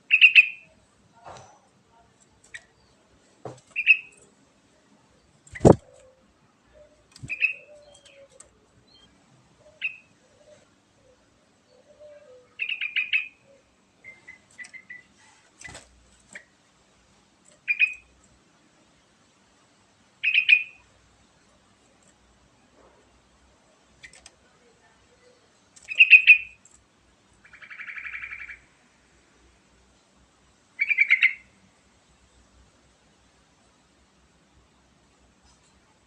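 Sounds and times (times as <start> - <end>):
sharp clicks: 5.4 - 6.1, 24.0 - 24.4
bulbul chirping: 5.5 - 6.0.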